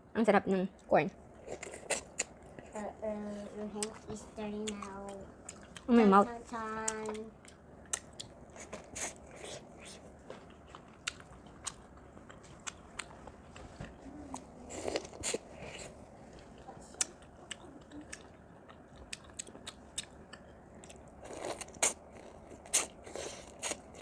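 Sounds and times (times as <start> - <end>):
biting and chewing corn: 1.4 - 2.8, 7.0 - 24.0.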